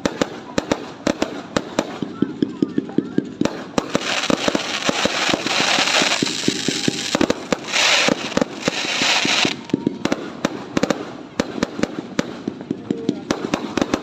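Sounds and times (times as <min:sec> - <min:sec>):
fireworks popping and banging: 0:00.0 - 0:14.0
fireworks crackling hiss: 0:03.4 - 0:14.0.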